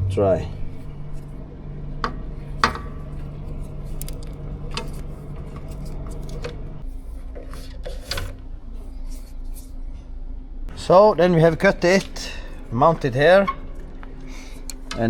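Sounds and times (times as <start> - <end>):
steady background hum: 0.0 - 15.0
hands and tools clicking: 0.6 - 6.8, 11.7 - 15.0.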